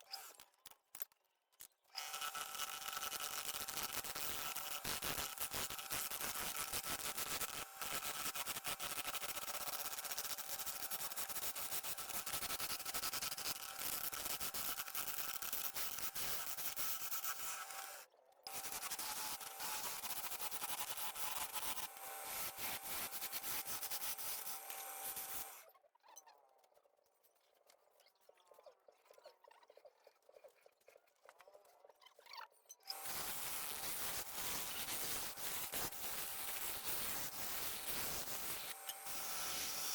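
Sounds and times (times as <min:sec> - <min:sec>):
lathe tool scraping wood: 0:02.0 - 0:25.6, 0:32.9 - 0:39.9
lathe motor hum: 0:17.6 - 0:25.6, 0:32.9 - 0:39.9.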